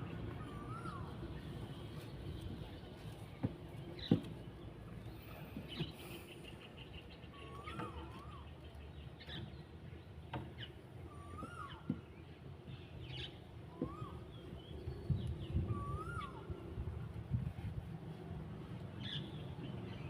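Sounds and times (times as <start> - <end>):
low rumble of wind or water: 0.0 - 20.0
whistled bird call: 0.4 - 1.3, 7.2 - 8.7, 11.1 - 12.1, 13.1 - 16.8.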